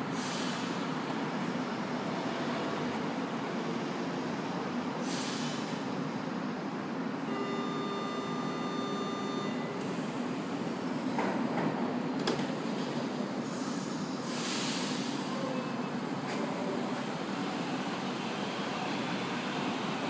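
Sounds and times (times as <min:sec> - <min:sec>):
high steady tone: 0:07.3 - 0:09.8.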